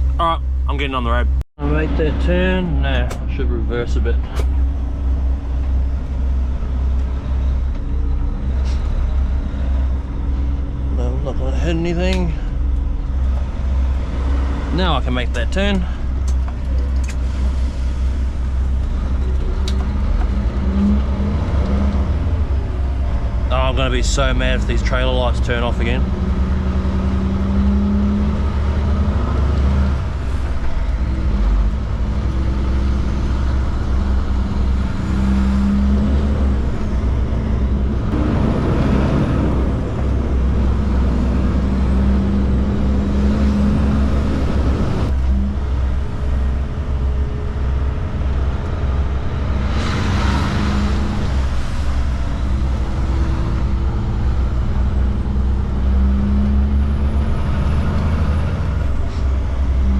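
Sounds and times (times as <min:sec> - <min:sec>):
diesel truck engine accelerating: 0:00.0 - 0:59.9
rushing noise passing: 0:28.5 - 0:47.0, 0:48.8 - 0:59.5.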